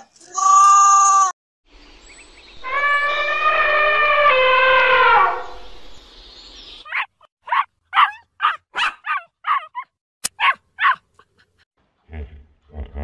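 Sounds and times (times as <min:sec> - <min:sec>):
dog barking: 0:06.9 - 0:11.0.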